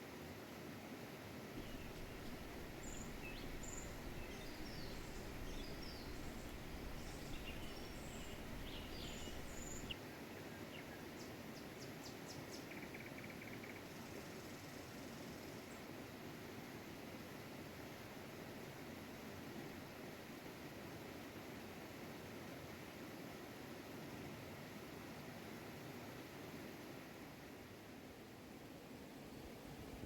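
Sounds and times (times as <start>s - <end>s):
background hiss: 1.3s - 10.0s
bird trill: 1.6s - 10.0s
small birds chirping: 1.6s - 10.0s.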